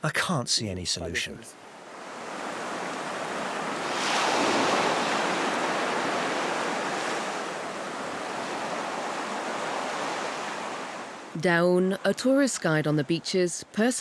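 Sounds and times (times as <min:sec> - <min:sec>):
wave breaking and washing back: 0:01.6 - 0:11.4.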